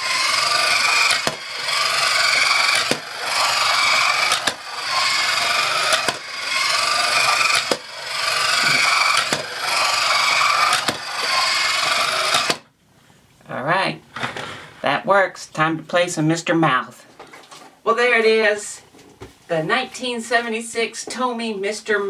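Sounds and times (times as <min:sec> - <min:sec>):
sharp plastic click: 0:00.0 - 0:12.6
toy motor and gears whirring: 0:00.0 - 0:12.6.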